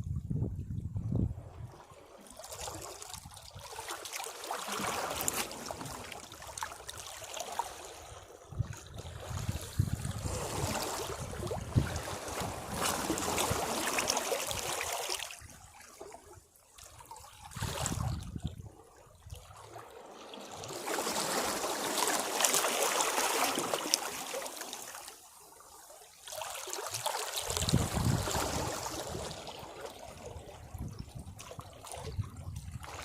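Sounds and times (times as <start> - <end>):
sea waves washing over rocks: 2.4 - 8.1, 9.3 - 15.4, 19.9 - 25.2, 26.4 - 30.6.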